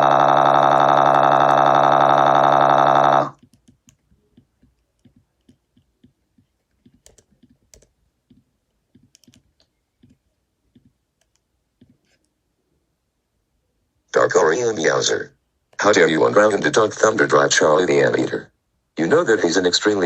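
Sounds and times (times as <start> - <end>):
loud buzzing electronic tone: 0.0 - 3.4
faint clicks and taps: 3.4 - 12.4.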